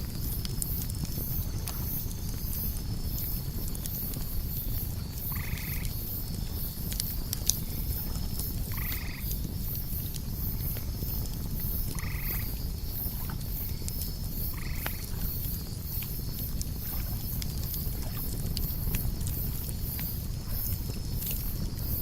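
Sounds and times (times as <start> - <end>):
campfire crackling and popping: 0.0 - 22.0
crickets chirping: 0.0 - 22.0
croaking animal call: 5.3 - 5.9, 8.7 - 9.3, 11.9 - 12.5, 14.5 - 15.1.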